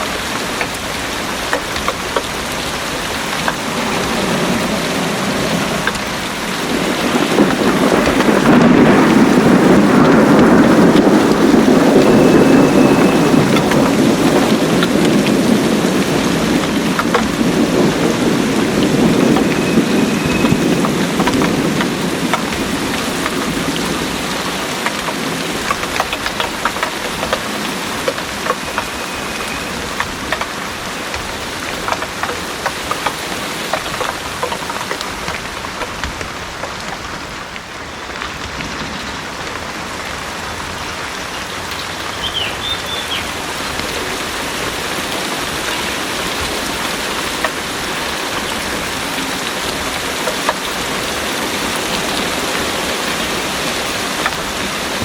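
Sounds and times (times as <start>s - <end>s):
heavy rain pouring: 0.0s - 55.0s
thunder rumble: 0.4s - 40.8s.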